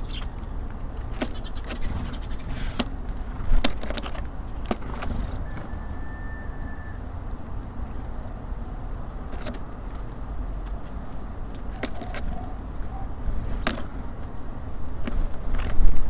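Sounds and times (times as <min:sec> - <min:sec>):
faint bird chirp: 0:00.0 - 0:00.4, 0:01.2 - 0:02.8
birds tapping at bird feeder: 0:00.0 - 0:05.0
city traffic rumble: 0:00.0 - 0:16.0.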